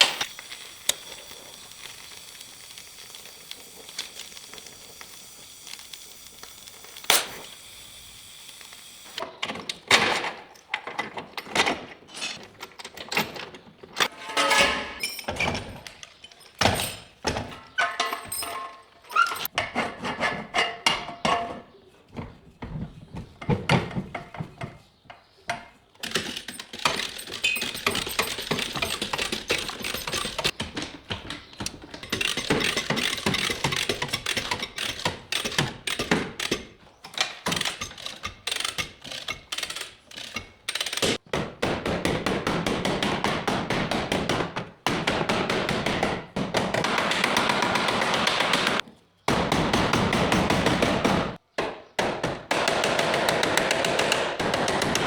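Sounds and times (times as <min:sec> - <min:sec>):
hammering on sheet metal: 0:41.2 - 0:55.0.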